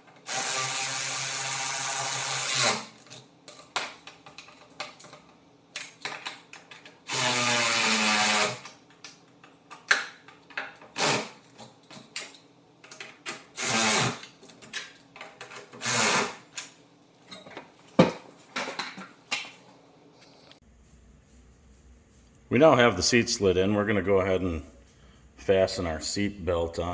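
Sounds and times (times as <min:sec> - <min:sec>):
power drill running: 0:00.3 - 0:02.8, 0:07.1 - 0:08.6, 0:13.6 - 0:14.2, 0:15.8 - 0:16.3
clinks of tools and hardware: 0:03.0 - 0:07.0, 0:08.6 - 0:13.5, 0:14.2 - 0:15.8, 0:16.5 - 0:19.6.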